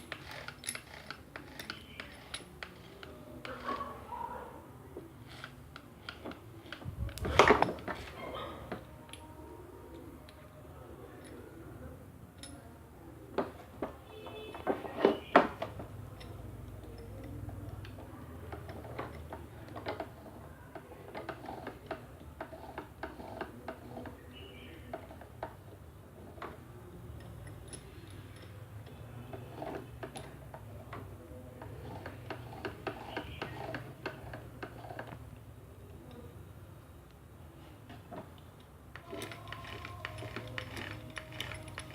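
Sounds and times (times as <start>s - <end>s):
drill and bit clicking and rattling: 0.0s - 3.7s, 39.0s - 41.9s.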